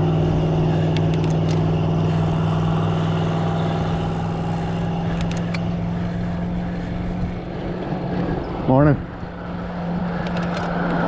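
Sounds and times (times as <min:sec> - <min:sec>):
bike riding road and wind noise: 0:00.0 - 0:11.0
sharp bike clicks: 0:00.9 - 0:05.8.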